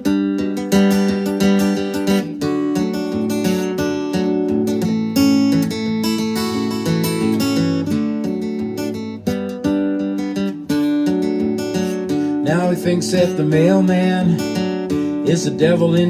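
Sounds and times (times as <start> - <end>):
acoustic guitar strumming: 0.0 - 16.0
person singing: 12.4 - 16.0.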